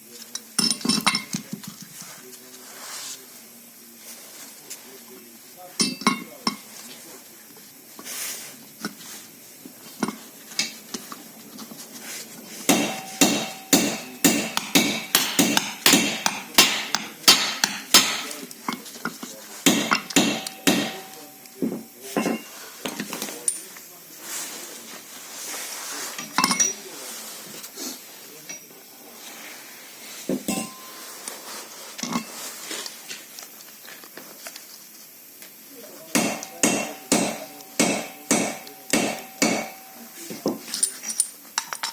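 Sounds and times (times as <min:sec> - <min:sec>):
hammer striking metal: 0:12.7 - 0:18.4, 0:19.7 - 0:22.5, 0:30.5 - 0:31.0, 0:36.1 - 0:40.2
metal tools clinking: 0:12.7 - 0:23.8, 0:26.2 - 0:26.9, 0:30.5 - 0:31.4, 0:36.2 - 0:41.9
loud knocks: 0:36.2 - 0:39.9.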